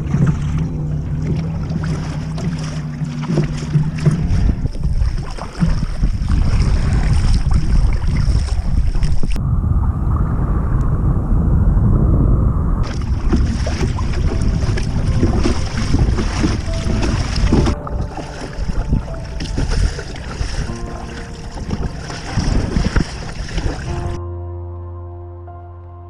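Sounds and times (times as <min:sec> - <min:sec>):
steady low hum: 0:00.0 - 0:06.9
choppy sea: 0:00.0 - 0:24.2
wind buffeting microphone: 0:00.0 - 0:24.2.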